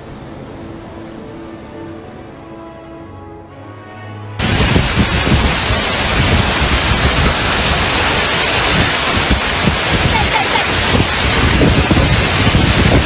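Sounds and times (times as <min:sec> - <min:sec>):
rain: 0:00.0 - 0:13.0
wind buffeting microphone: 0:04.4 - 0:13.0.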